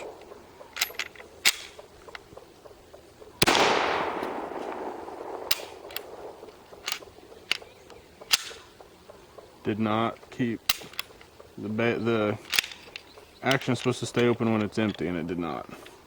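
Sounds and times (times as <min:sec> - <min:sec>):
pistol shot echoing: 0:00.0 - 0:01.9, 0:03.3 - 0:08.8.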